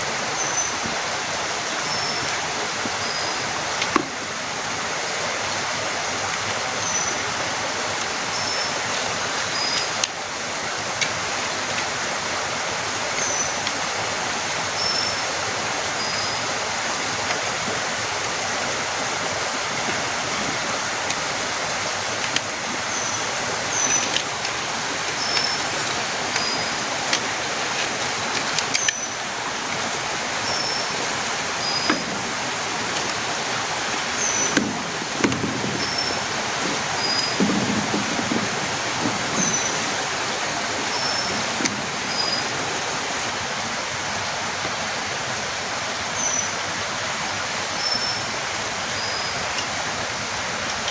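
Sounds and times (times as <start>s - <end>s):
heavy rain hissing: 0.0s - 50.9s
small high chirping call: 13.1s - 13.7s, 14.7s - 17.0s, 22.8s - 24.2s, 29.9s - 37.4s, 39.2s - 43.3s
knocks of drops: 31.6s - 43.3s.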